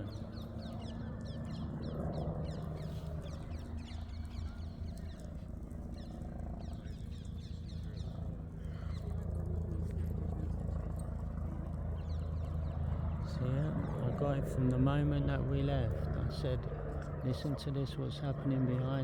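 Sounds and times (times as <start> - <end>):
birds twittering: 0.0 - 19.0
helicopter droning overhead: 0.0 - 19.0.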